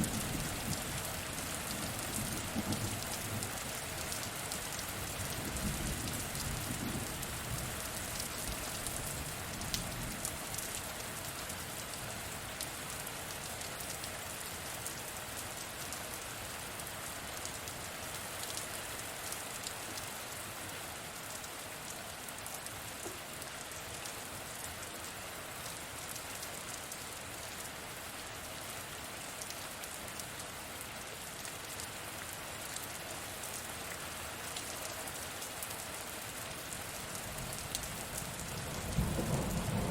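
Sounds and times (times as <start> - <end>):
heavy rain: 0.0 - 39.9
low thunder rumble: 38.6 - 39.9.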